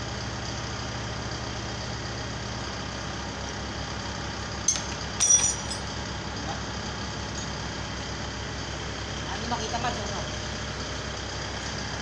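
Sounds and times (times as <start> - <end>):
short metallic clinks: 4.7 - 5.9
truck engine idling: 5.9 - 12.0.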